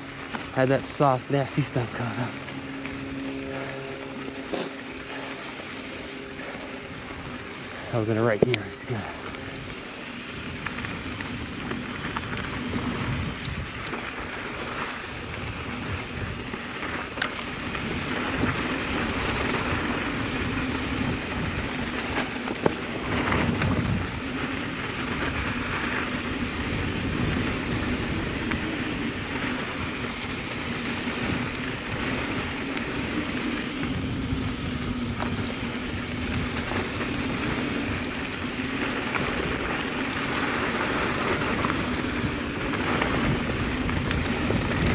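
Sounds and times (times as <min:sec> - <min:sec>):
bike rattling over rough ground: 0:00.0 - 0:44.9
bike tyres on dirt: 0:00.0 - 0:44.9
wind buffeting microphone: 0:08.5 - 0:14.1, 0:14.8 - 0:44.9.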